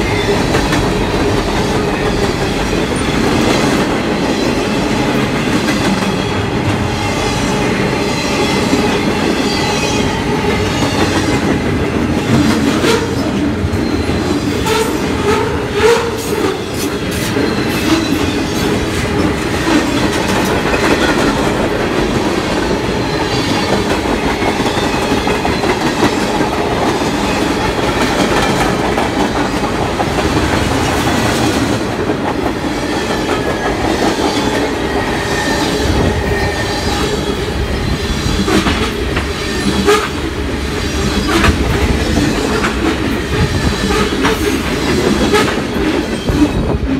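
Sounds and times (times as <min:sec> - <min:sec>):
clickety-clack over rail joints: 0:00.0 - 0:07.0, 0:10.4 - 0:46.9
freight train wheels rumbling: 0:00.0 - 0:46.9.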